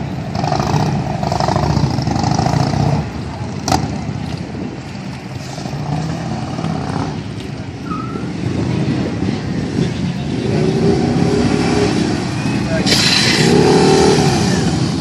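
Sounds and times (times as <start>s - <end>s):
motorcycle engines rumbling: 0.0s - 15.0s.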